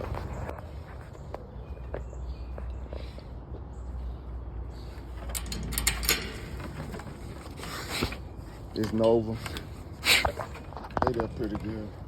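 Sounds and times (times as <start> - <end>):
clattering rattle of clicks: 5.1 - 8.2.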